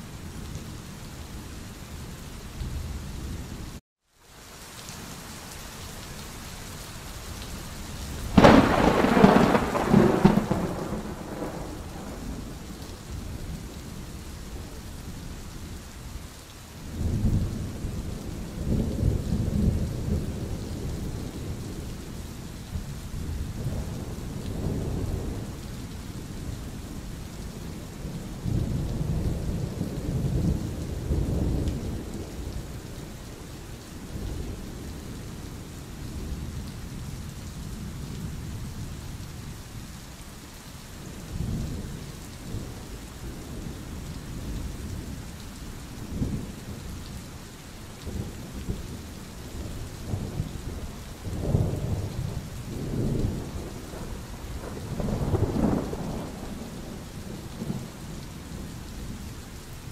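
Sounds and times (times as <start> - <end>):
steady rain: 0.0 - 59.9
thunder rumbling: 8.3 - 14.0, 48.0 - 59.2.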